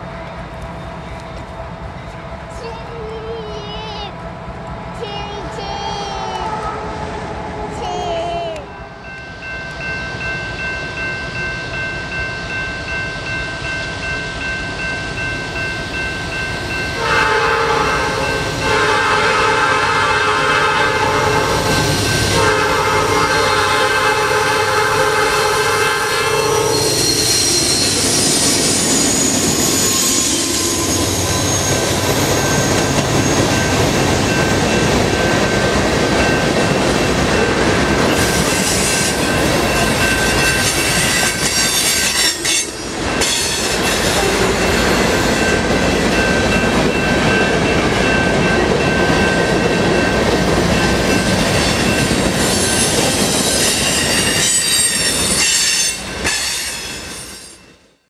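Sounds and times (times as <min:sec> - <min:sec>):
freight train wheels rumbling: 0:00.0 - 0:58.0
locomotive horn: 0:06.2 - 0:07.1, 0:17.0 - 0:27.2
high-pitched wheel squeal: 0:26.4 - 0:33.5.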